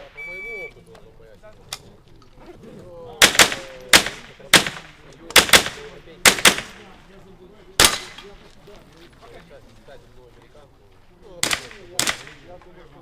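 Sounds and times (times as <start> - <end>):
rifle shots: 3.2 - 6.9, 7.8 - 8.3, 11.4 - 12.5.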